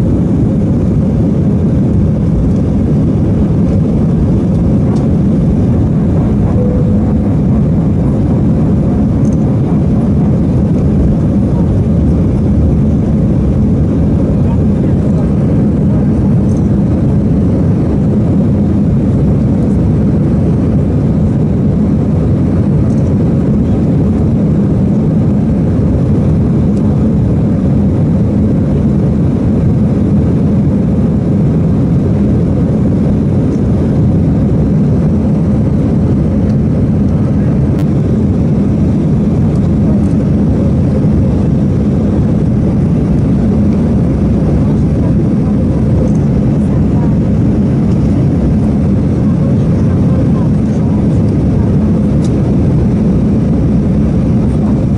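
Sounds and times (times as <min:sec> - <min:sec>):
airliner cabin engine rumble: 0:00.0 - 0:54.9.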